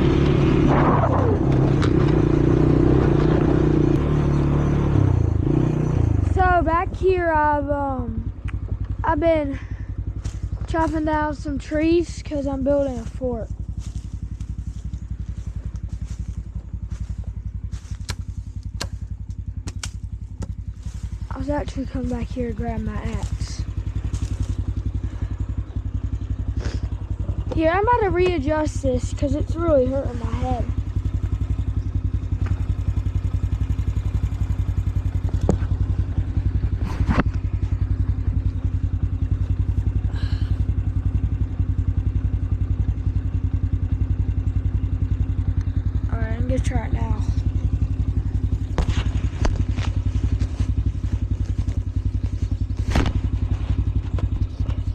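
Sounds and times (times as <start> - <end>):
four-wheeler engine running: 0.0 - 54.9
sharp clicks: 18.0 - 20.5.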